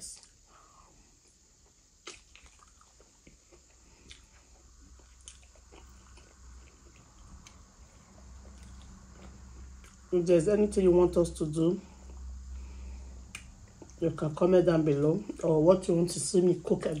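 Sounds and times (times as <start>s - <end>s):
chewing and mouth sounds: 1.2s - 10.1s, 13.3s - 14.0s.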